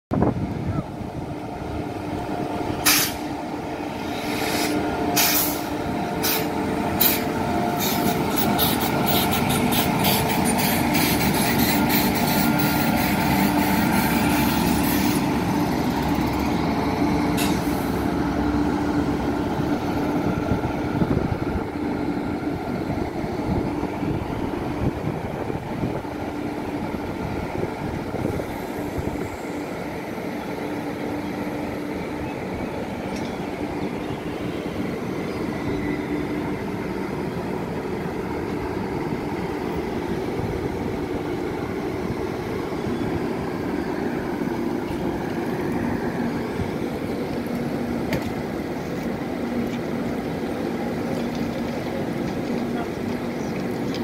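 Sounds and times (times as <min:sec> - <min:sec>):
train rumble: 0:00.1 - 0:54.0.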